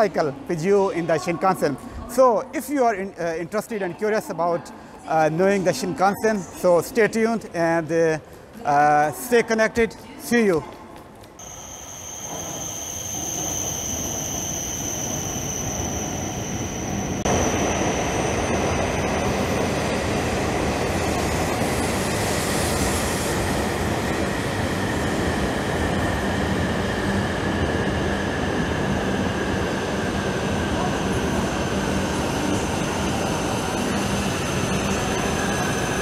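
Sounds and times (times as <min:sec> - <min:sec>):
train high whine: 0:11.4 - 0:36.0.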